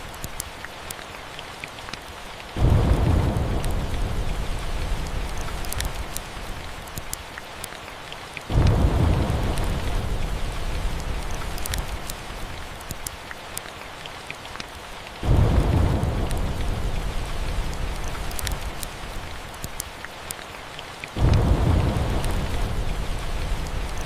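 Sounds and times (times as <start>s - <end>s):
steady rain: 0.0s - 24.0s
thunder rumbling: 2.6s - 6.8s, 8.5s - 12.8s, 15.2s - 19.5s, 21.2s - 24.0s
sharp ticks: 5.6s - 6.2s, 11.5s - 12.2s, 18.0s - 18.9s.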